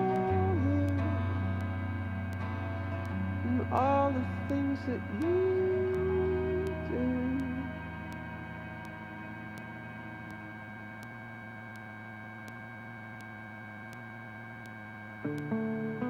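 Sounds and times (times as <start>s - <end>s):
strummed guitar music: 0.0s - 11.3s, 15.2s - 16.0s
helicopter cabin drone: 0.0s - 15.4s
faint regular ticks: 0.0s - 15.6s.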